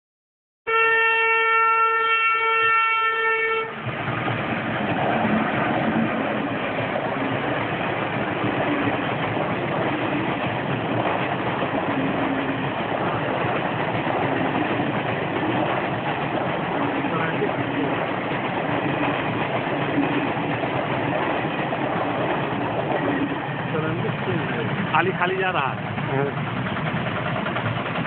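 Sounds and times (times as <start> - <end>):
train horn blast: 0.7 - 3.8
train wheels clattering on rails: 3.8 - 28.0.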